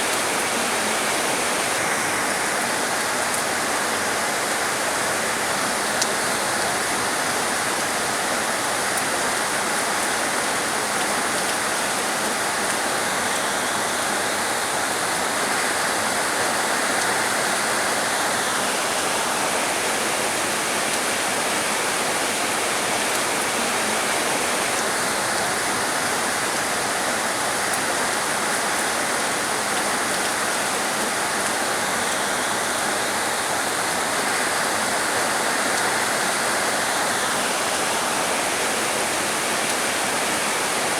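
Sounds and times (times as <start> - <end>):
heavy rain hissing: 10.2 - 40.9.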